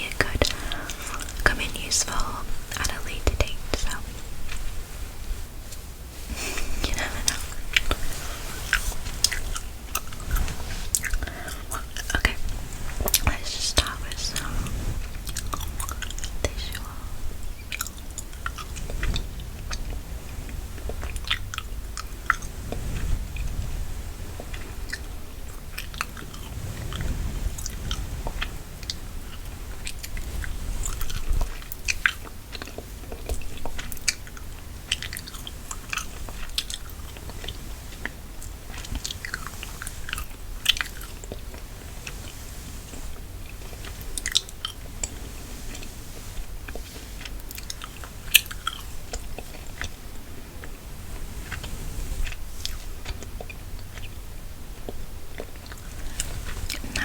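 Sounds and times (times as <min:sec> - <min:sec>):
gum chewing: 0:08.7 - 0:12.4.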